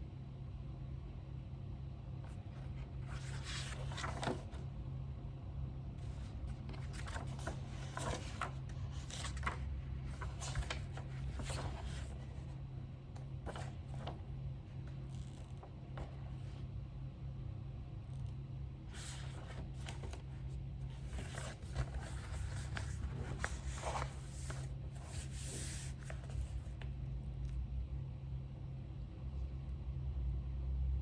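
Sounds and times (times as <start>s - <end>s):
low steady hum: 0.0s - 31.0s
paper scratching and rustling: 2.3s - 4.6s, 6.0s - 12.6s, 13.2s - 16.6s, 18.9s - 26.9s.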